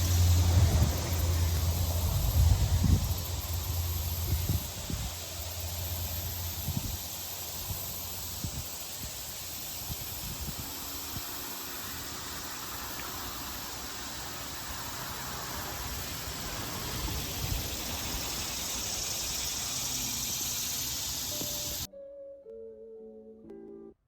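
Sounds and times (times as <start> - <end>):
wind on microphone: 0.0 - 5.4, 6.4 - 11.3.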